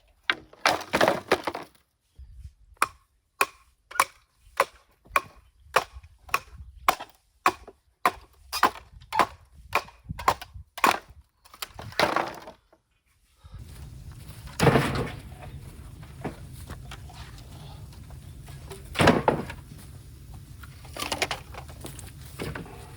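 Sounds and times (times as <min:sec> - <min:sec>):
bamboo splitting crack: 0:02.8 - 0:12.4
bamboo crackling clatter: 0:13.6 - 0:22.9
steady low hum: 0:13.6 - 0:22.9.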